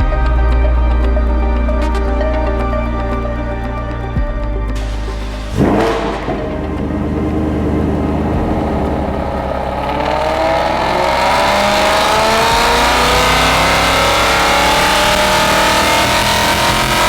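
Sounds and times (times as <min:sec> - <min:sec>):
supercharged engine revving: 0:04.8 - 0:17.0.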